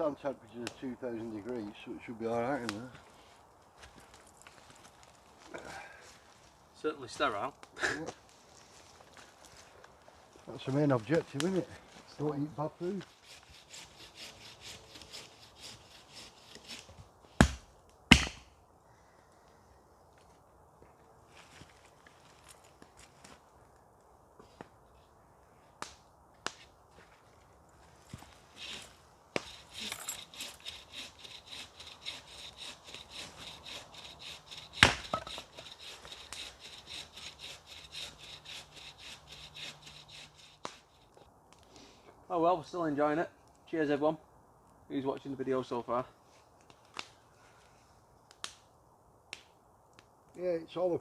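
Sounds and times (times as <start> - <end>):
rasping strokes on wood: 12.9 - 16.9, 28.6 - 41.2.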